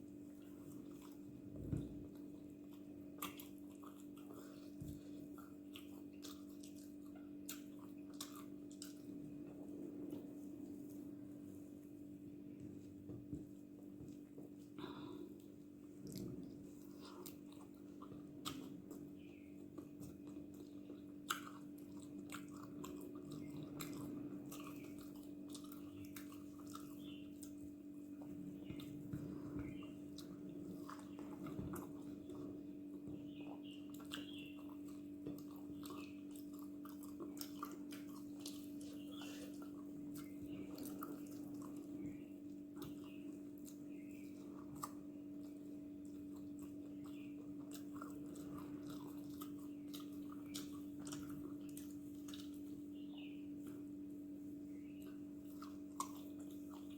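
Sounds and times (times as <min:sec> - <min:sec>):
person chewing food: 0:00.0 - 0:56.9
steady low hum: 0:00.0 - 0:56.9.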